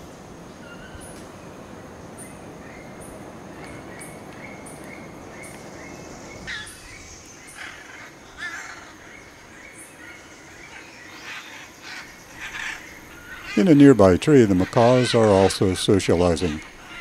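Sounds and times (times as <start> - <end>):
faint chirping: 0.4 - 17.0
macaws squawking: 6.4 - 17.0.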